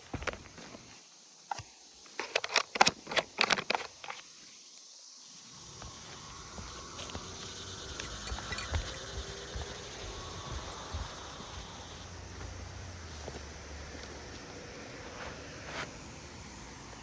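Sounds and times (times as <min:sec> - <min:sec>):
footsteps on shingle roof: 0:06.6 - 0:14.5.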